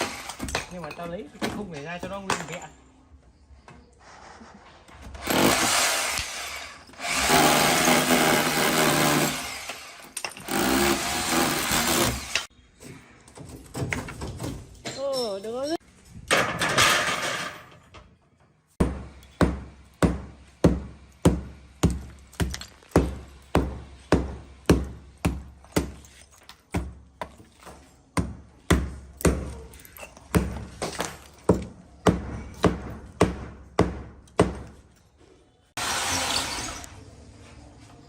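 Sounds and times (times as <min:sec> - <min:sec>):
hammering on wood: 0:18.8 - 0:26.0, 0:28.2 - 0:29.6, 0:30.3 - 0:34.8.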